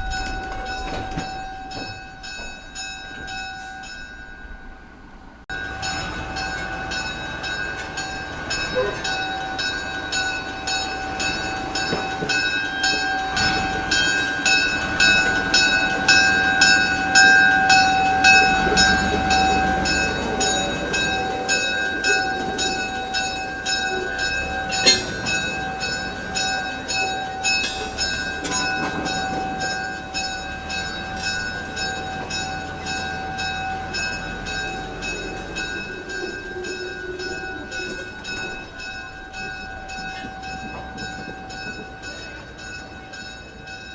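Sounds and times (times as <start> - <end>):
train bell ringing: 0.0 - 43.9
train rumbling: 0.0 - 43.9.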